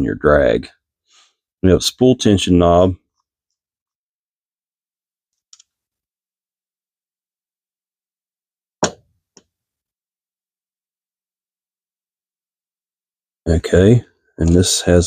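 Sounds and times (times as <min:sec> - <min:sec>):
small click of reel parts: 0:05.4 - 0:05.7.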